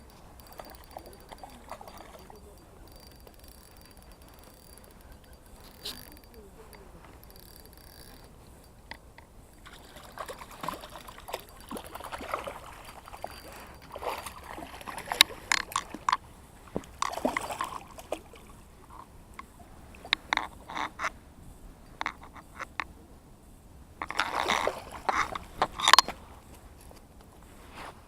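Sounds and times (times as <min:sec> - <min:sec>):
water splashing and sloshing: 0:00.0 - 0:04.9, 0:09.5 - 0:21.1, 0:24.0 - 0:26.1.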